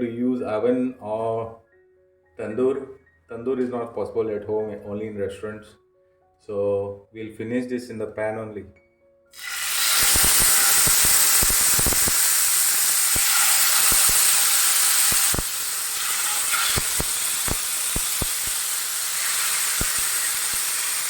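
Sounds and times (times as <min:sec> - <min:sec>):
chicken sizzling in hot pan: 0:09.4 - 0:21.0
fat popping and crackling: 0:09.9 - 0:21.0.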